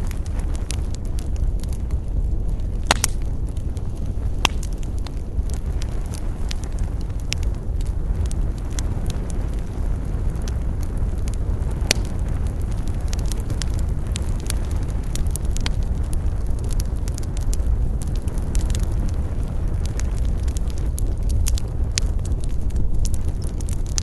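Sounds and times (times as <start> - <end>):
campfire crackling and popping: 0.0 - 24.0
low fire rumble: 0.0 - 24.0.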